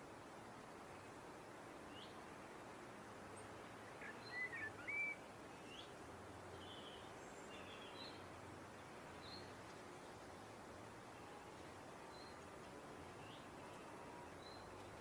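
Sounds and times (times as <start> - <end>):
steady background hiss: 0.0 - 15.0
blackbird singing: 3.9 - 5.9.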